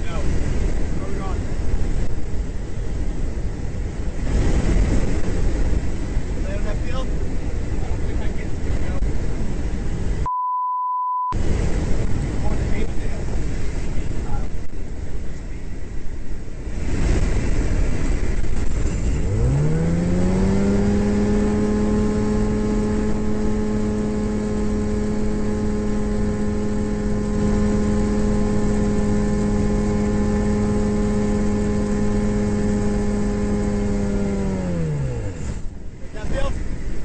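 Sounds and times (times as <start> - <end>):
light aircraft engine droning: 0.0 - 10.2, 11.4 - 37.0
wind rushing: 11.4 - 37.0.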